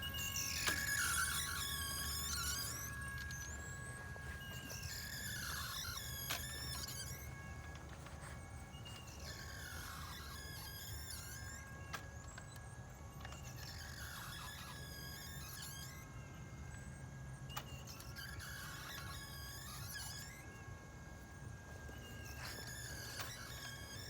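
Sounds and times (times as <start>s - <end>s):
motor hum: 0.0s - 15.4s, 16.1s - 24.0s
high squeaking and squeals: 0.2s - 7.6s, 8.2s - 11.7s, 21.7s - 24.0s.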